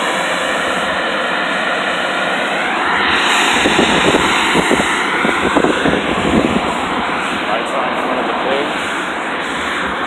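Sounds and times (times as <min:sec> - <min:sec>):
car wash machinery rushing: 0:00.0 - 0:10.0
low buffeting: 0:00.0 - 0:10.0.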